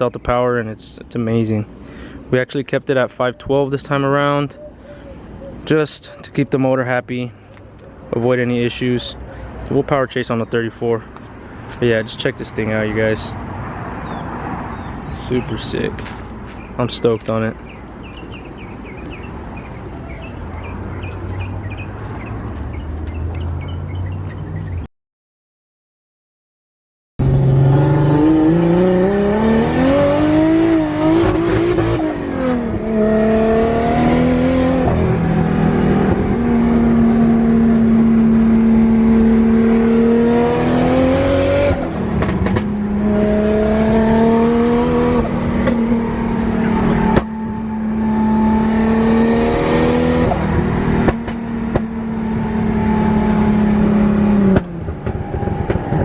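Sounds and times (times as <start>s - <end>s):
car engine revving: 27.2s - 56.0s.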